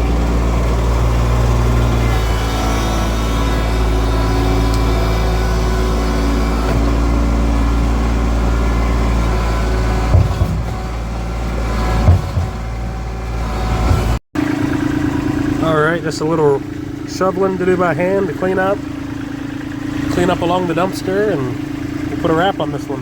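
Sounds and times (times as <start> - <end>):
diesel engine running: 0.0 - 23.0
short knocks: 8.8 - 14.2.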